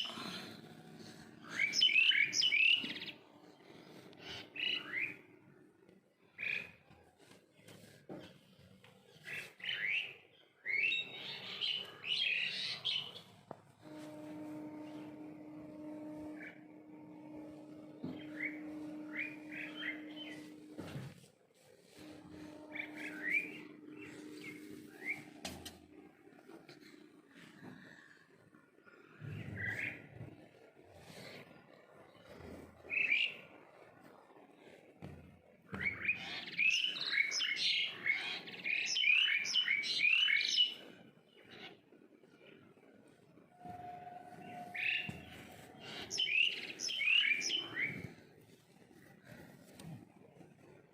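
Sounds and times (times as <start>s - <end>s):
steady low hum: 0.0s - 38.6s.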